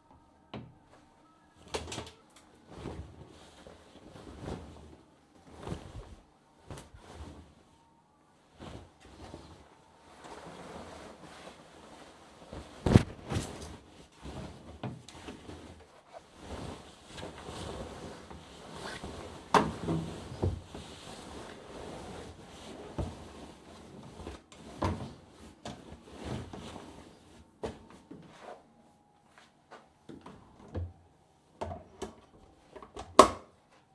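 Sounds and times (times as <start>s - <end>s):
soft rustle: 0.8s - 30.6s
objects handled and set down: 12.8s - 13.8s.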